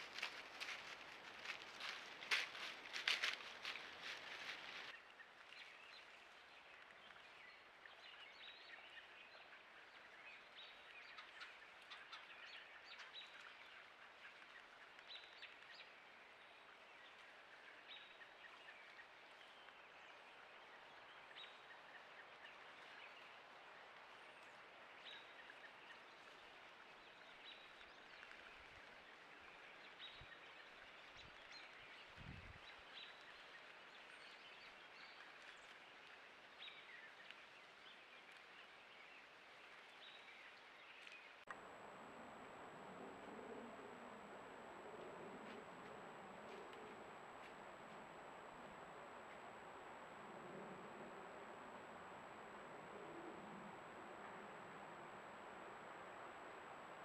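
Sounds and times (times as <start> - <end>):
steady low hiss: 9.6 - 57.0.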